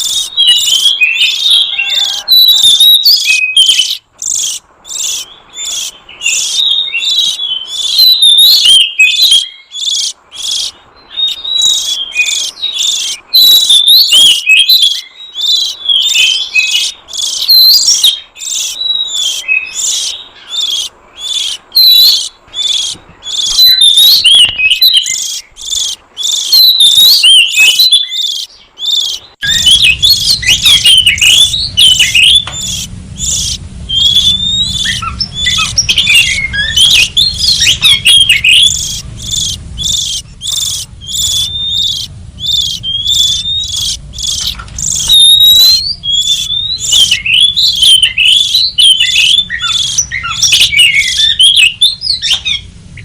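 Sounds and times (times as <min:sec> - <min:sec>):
songbird whistling phrases: 0:00.0 - 0:52.7
low hum: 0:29.4 - 0:53.0.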